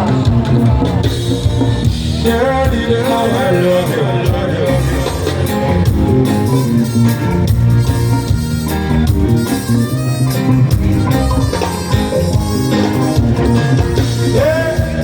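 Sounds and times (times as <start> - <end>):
bass: 0.0 - 15.0
drums: 0.0 - 15.0
live band playing: 0.0 - 15.0
sustained keyboard or guitar chords: 0.0 - 15.0.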